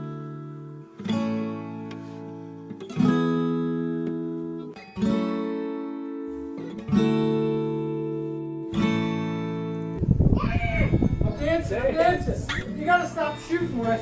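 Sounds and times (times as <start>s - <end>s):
acoustic guitar strummed slowly: 0.0s - 10.1s.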